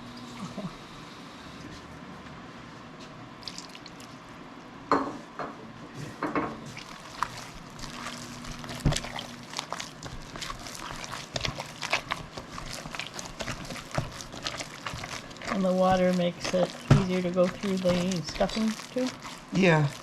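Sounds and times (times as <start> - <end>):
hands kneading wet meat: 3.4 - 4.2, 6.7 - 20.0.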